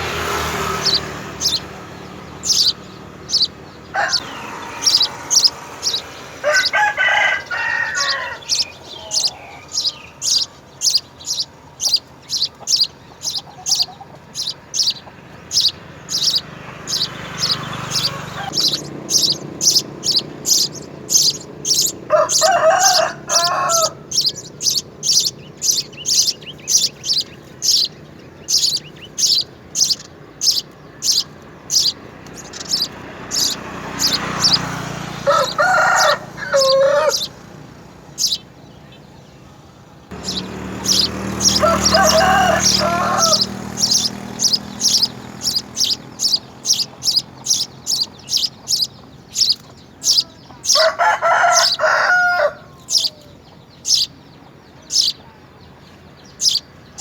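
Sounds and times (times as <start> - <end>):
small bird chirping: 0.0 - 57.0
rooster crowing: 2.5 - 10.5, 15.6 - 25.9, 31.0 - 38.4, 40.1 - 47.4, 50.0 - 53.4.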